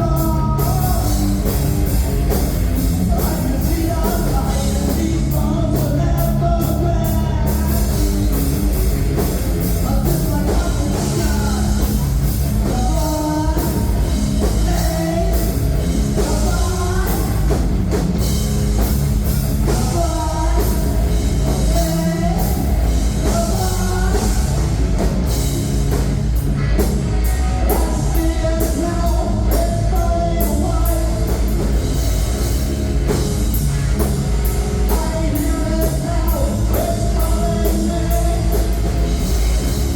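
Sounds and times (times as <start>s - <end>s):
person singing: 0.0s - 1.7s, 3.0s - 8.4s, 9.7s - 18.0s, 19.6s - 24.8s, 27.2s - 31.6s, 34.8s - 39.0s
bass guitar: 0.0s - 39.9s
distorted electric guitars: 0.0s - 39.9s
drum kit: 0.0s - 39.9s.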